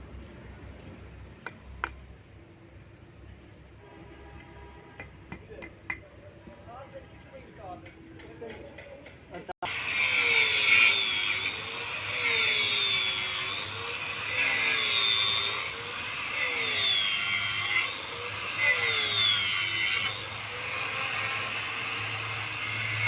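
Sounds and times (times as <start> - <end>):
electric tile saw running: 9.6 - 23.0
saw blade cutting tile: 9.6 - 23.0.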